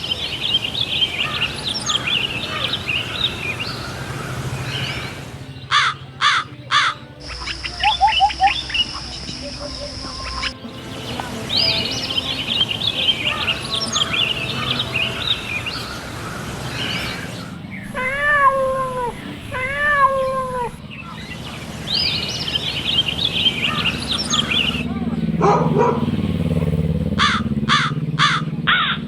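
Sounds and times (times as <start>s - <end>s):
songbirds chirping: 0.0s - 29.0s
cat meowing: 17.8s - 20.8s.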